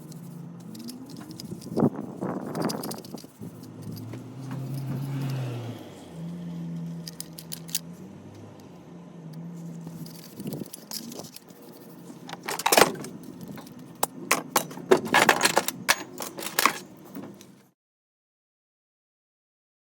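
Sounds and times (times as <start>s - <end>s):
metal clinking and rattling: 0.1s - 5.4s, 6.9s - 7.9s, 9.8s - 17.5s.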